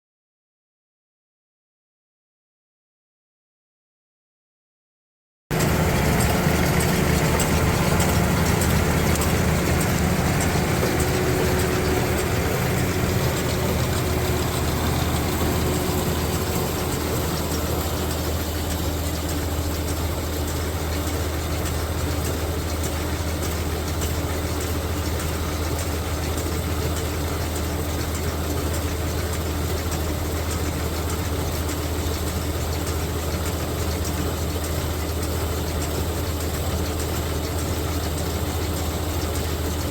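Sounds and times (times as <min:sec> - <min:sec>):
tractor engine running: 0:05.5 - 0:39.9.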